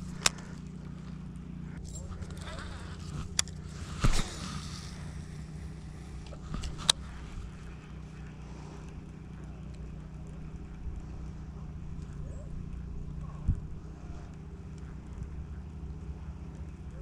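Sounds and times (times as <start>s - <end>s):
short whoosh: 2.0s - 7.7s
wind rumbling on microphone: 10.4s - 15.4s.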